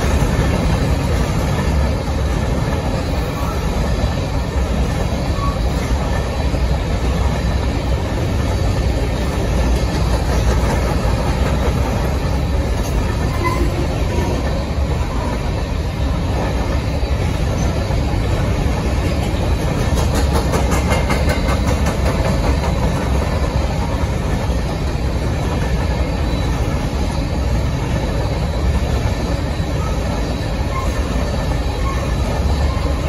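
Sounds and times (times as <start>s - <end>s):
freight train wheels rumbling: 0.0s - 33.0s.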